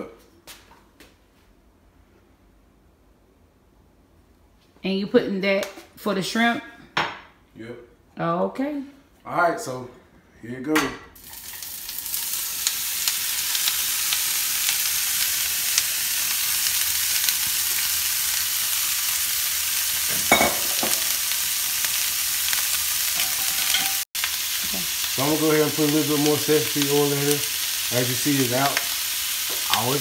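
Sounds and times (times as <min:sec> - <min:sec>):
food sizzling in a skillet: 0:11.2 - 0:30.0.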